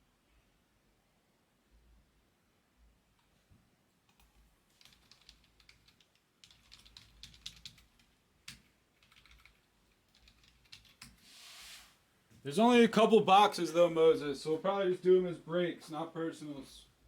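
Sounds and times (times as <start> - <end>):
typing on computer keyboard: 4.0 - 11.2.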